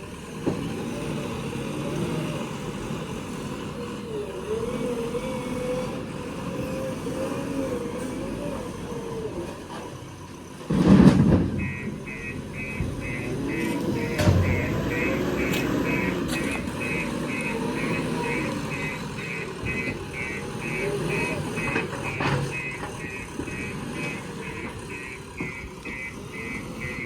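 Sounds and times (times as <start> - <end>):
heavy diesel machinery running: 0.0 - 27.0
reversing alarm beeping: 11.6 - 27.0.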